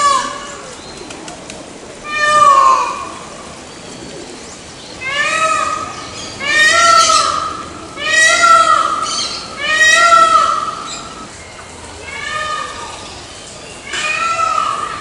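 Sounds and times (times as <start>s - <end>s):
peafowl calling: 2.0s - 3.4s, 5.0s - 11.3s.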